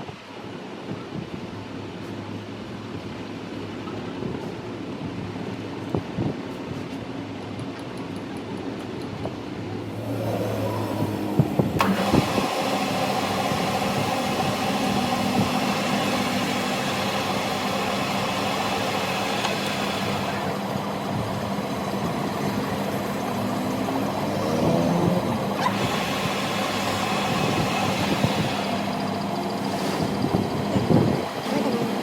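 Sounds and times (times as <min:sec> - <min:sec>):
machine humming: 0:09.9 - 0:32.0.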